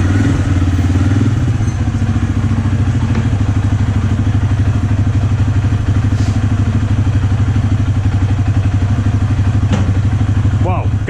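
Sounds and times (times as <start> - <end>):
atv engine idling: 0.0 - 11.0.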